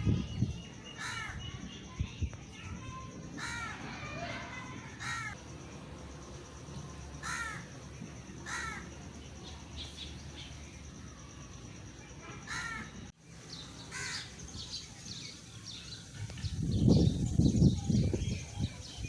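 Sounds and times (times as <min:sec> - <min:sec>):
small birds chirping: 0:00.0 - 0:05.4, 0:06.8 - 0:19.0
crows cawing: 0:01.0 - 0:01.4, 0:03.4 - 0:05.4, 0:07.2 - 0:07.8, 0:08.4 - 0:08.9, 0:12.4 - 0:13.0, 0:13.9 - 0:14.3
low outdoor hiss: 0:03.9 - 0:19.0.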